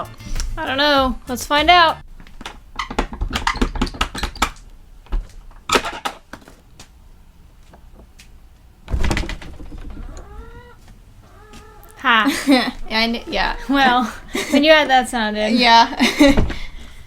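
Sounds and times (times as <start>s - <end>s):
chickens calling: 9.7s - 15.1s.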